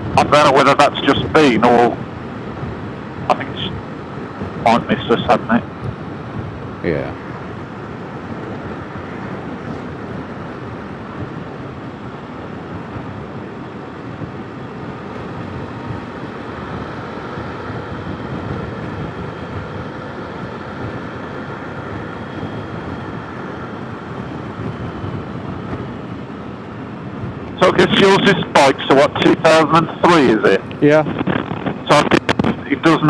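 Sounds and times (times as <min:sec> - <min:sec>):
faint steady whines: 0:00.0 - 0:33.0
road and wind noise: 0:00.0 - 0:33.0
motorcycle engine: 0:05.6 - 0:27.6.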